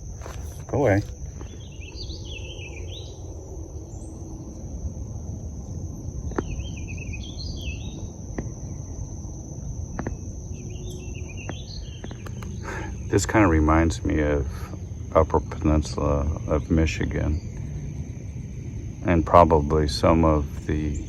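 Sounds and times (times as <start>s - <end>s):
songbird warbling: 0.0s - 4.4s
insects droning: 0.0s - 21.0s
low wind rumble: 0.0s - 21.0s
faint clicks: 11.5s - 12.6s.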